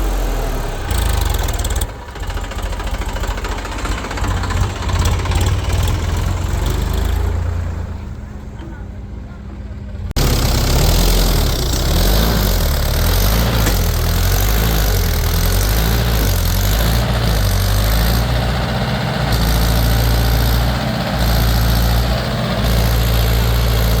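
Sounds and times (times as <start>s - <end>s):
heavy vehicle engine running: 0.0s - 24.0s.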